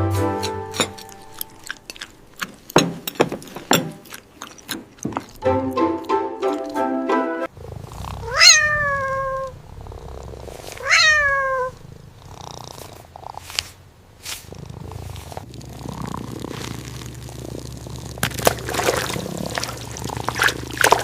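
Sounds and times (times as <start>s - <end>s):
cat purring: 0.7s - 6.8s, 7.4s - 21.0s
cat meowing: 8.2s - 9.6s, 10.7s - 11.8s.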